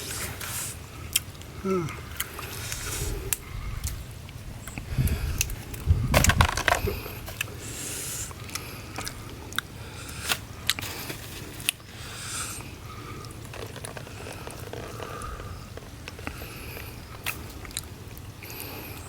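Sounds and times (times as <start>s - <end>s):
crab shells cracking and crunching: 12.6s - 18.6s.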